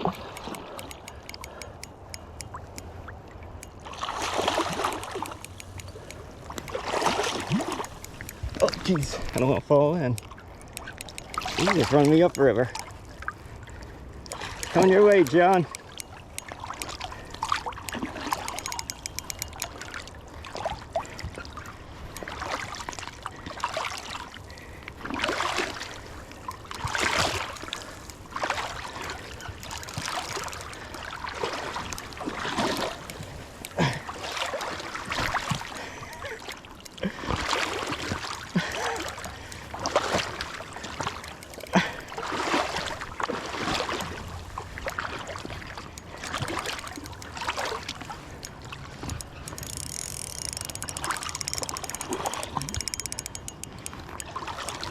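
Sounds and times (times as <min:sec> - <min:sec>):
fast ticks: 0:00.0 - 0:13.2, 0:14.2 - 0:20.2, 0:29.0 - 0:31.1, 0:31.8 - 0:33.8, 0:41.0 - 0:42.0, 0:45.9 - 0:54.9
river water splashing: 0:00.0 - 0:54.9.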